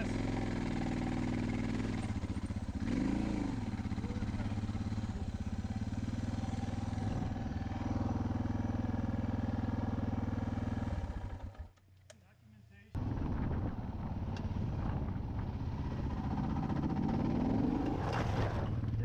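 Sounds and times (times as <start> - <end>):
motorcycle engine idling low: 0.0 - 11.7.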